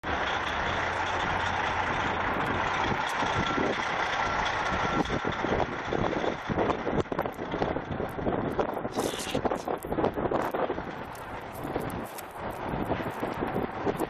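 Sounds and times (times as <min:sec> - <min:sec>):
large vehicle engine running: 0:00.0 - 0:08.9, 0:09.6 - 0:14.0
street noise: 0:00.0 - 0:14.0
wind gusts on microphone: 0:04.8 - 0:14.0.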